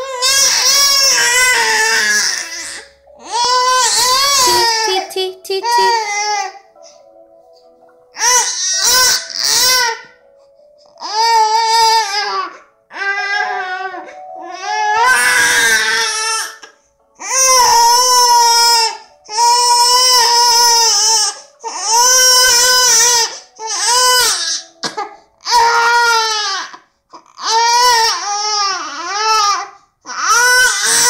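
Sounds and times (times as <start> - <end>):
baby crying in high wails: 0.0 - 6.6, 8.2 - 10.2, 10.9 - 24.8, 25.4 - 31.0.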